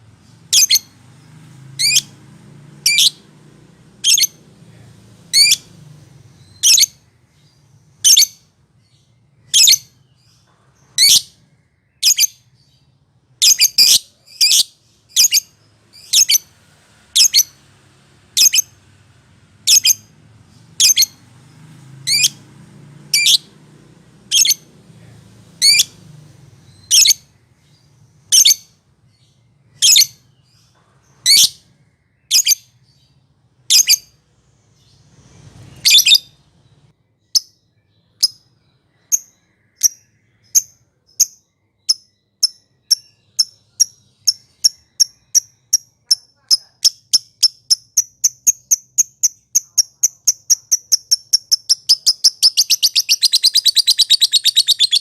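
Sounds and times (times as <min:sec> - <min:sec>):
lovebird high-pitched calls: 0:00.2 - 0:01.0, 0:01.7 - 0:02.2, 0:02.8 - 0:03.3, 0:04.0 - 0:04.4, 0:05.3 - 0:05.7, 0:06.3 - 0:12.8, 0:13.4 - 0:16.5, 0:17.1 - 0:17.6, 0:18.3 - 0:18.8, 0:19.6 - 0:21.2, 0:22.0 - 0:22.4, 0:23.0 - 0:23.6, 0:24.3 - 0:24.7, 0:25.6 - 0:26.0, 0:26.6 - 0:33.1, 0:33.7 - 0:34.2, 0:35.6 - 0:36.5, 0:37.2 - 0:55.0.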